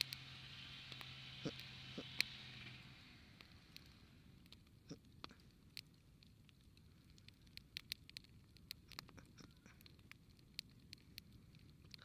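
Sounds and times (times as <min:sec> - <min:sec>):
low rumble: 0:00.0 - 0:04.8
campfire crackling: 0:00.0 - 0:12.0.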